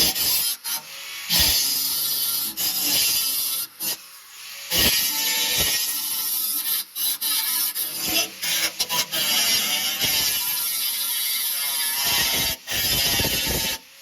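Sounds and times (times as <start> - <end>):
harsh hissing rasp on steel: 0.0 - 14.0.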